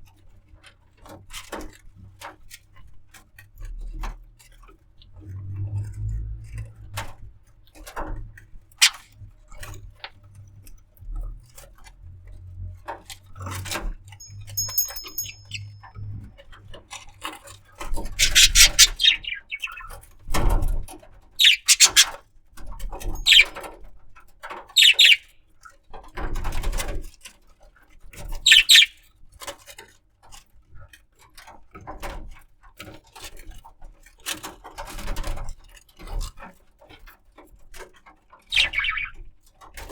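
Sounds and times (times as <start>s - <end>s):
thin bird whistle: 8.8s - 9.0s, 14.2s - 15.8s, 18.2s - 19.8s, 21.4s - 22.1s, 23.2s - 23.6s, 24.8s - 25.2s, 28.5s - 29.0s, 38.5s - 39.2s
budgerigar chirping: 8.8s - 9.1s, 14.2s - 15.8s, 18.2s - 19.9s, 21.4s - 22.2s, 23.1s - 23.6s, 24.8s - 25.2s, 28.4s - 29.0s, 38.5s - 39.2s.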